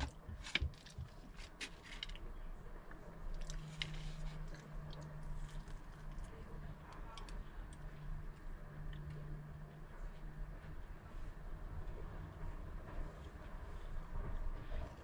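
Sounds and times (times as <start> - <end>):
person chewing food: 3.3 - 6.3.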